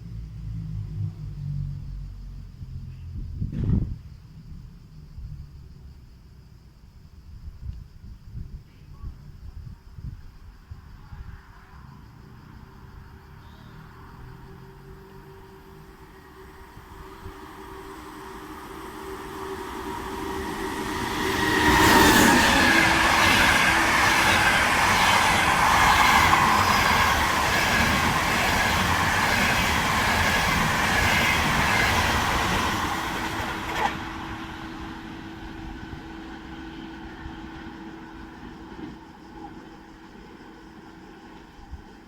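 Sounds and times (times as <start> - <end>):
train wheels on rails: 14.8 - 42.0.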